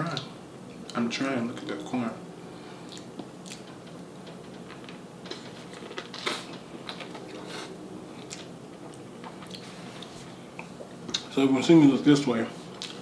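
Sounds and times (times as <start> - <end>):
crunchy chewing burst: 2.9 - 8.5.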